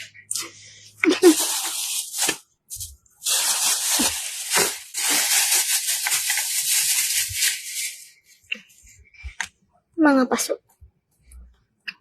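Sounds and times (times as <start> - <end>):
close rustling and crackling: 1.0 - 8.5.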